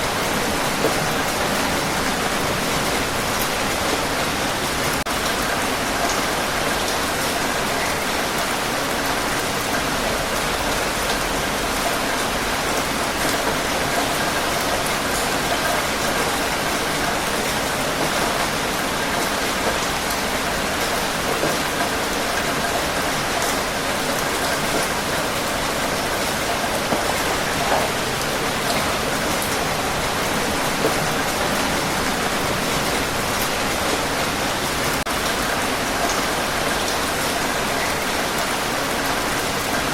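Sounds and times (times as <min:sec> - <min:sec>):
heavy rain hiss: 0:00.0 - 0:39.9
raindrops ticking on surface: 0:00.0 - 0:39.9.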